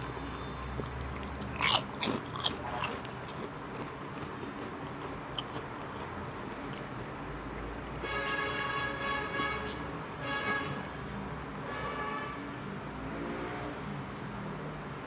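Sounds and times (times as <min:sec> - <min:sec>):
chewing: 0:00.0 - 0:07.0
crunching on fried pork rind: 0:00.0 - 0:07.0.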